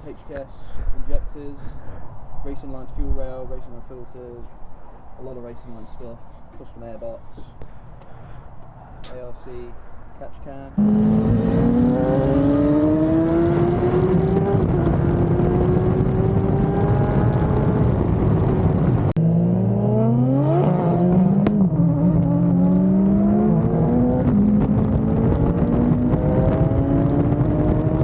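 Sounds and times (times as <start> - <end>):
vehicle engine accelerating: 10.8 - 28.0.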